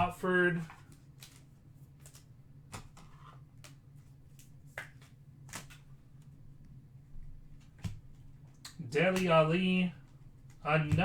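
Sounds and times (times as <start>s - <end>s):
faint low hum: 0.0s - 11.0s
cards flicking and tapping: 0.7s - 5.9s, 7.6s - 9.4s.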